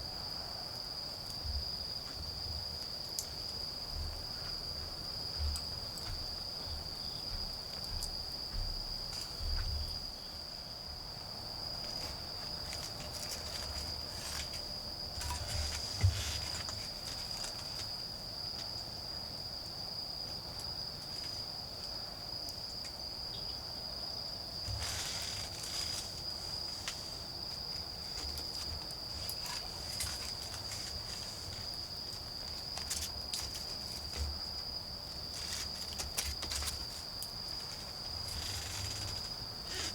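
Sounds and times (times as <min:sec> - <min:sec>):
crickets trilling: 0:00.0 - 0:39.9
handling rustle: 0:11.9 - 0:18.0, 0:24.7 - 0:34.4, 0:35.2 - 0:39.9.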